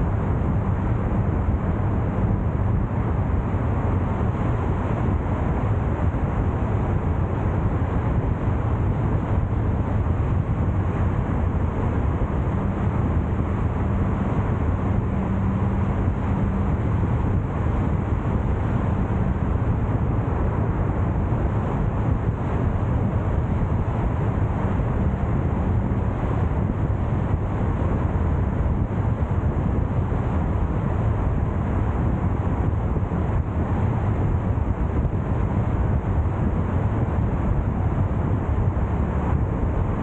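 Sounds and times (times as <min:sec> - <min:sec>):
car road and engine noise: 0:00.0 - 0:40.0.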